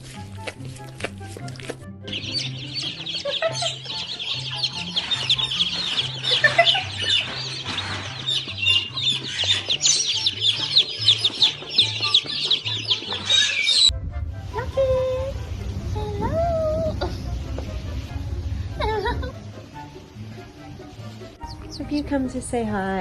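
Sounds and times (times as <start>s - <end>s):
background music with bass line: 0.0s - 23.0s
chickens calling: 1.6s - 13.9s.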